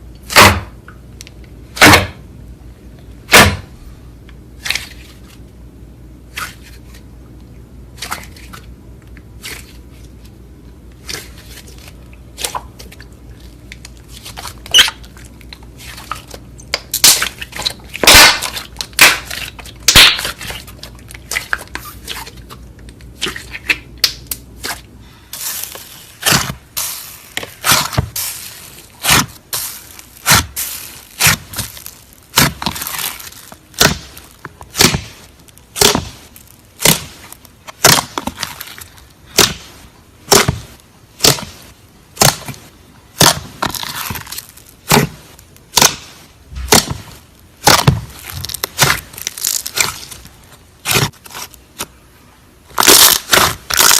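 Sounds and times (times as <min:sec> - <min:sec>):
slime crackling and popping: 0:11.0 - 0:24.8, 0:25.4 - 0:51.9, 0:52.6 - 0:53.9.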